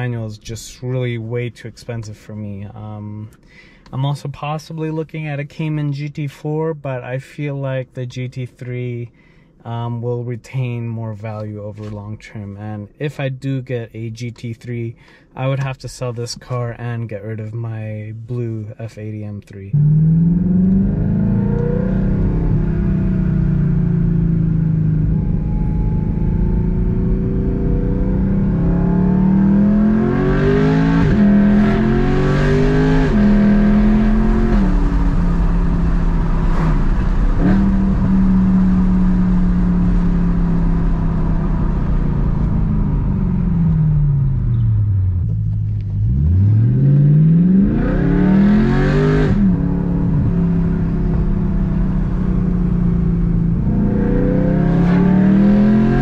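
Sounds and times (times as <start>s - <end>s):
car engine revving: 19.7s - 56.0s.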